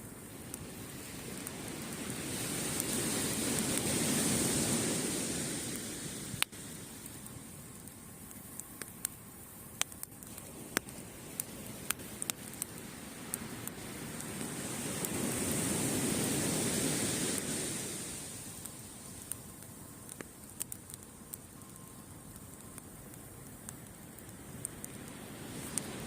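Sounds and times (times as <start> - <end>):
campfire wood crackling: 0.0 - 26.0
surf washing: 0.5 - 7.2, 10.5 - 19.3, 24.9 - 26.0.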